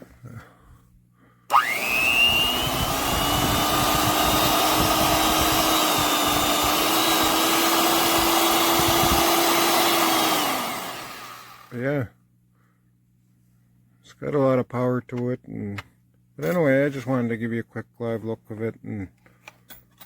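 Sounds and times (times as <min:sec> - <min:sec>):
electric hand mixer motor whine: 0:01.5 - 0:11.7.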